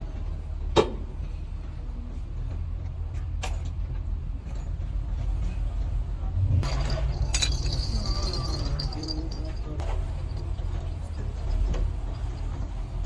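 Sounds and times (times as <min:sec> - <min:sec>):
motor rumbling: 0:06.6 - 0:13.0.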